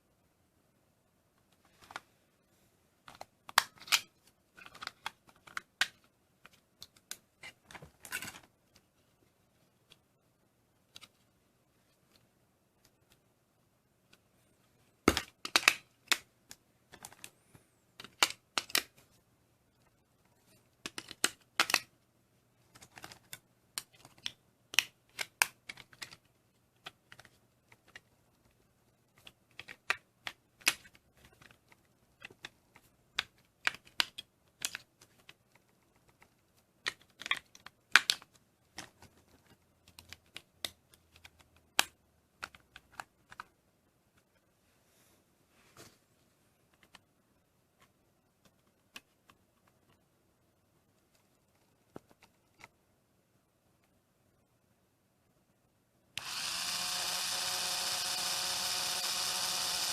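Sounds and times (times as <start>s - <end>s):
plastic clicks and rattles: 3.0s - 8.8s, 20.8s - 21.9s, 22.7s - 28.1s, 29.1s - 43.5s.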